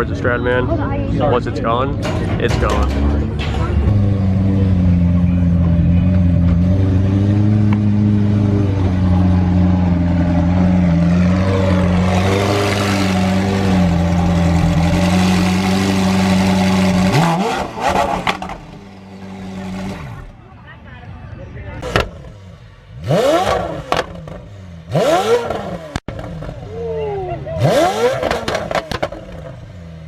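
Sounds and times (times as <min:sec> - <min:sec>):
car engine droning: 0:00.0 - 0:30.0
sharp clattering knocks: 0:02.0 - 0:04.4.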